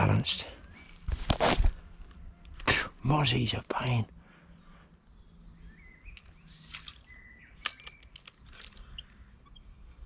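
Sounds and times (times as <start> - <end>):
bird chirps: 0.0 - 1.1, 4.3 - 10.0.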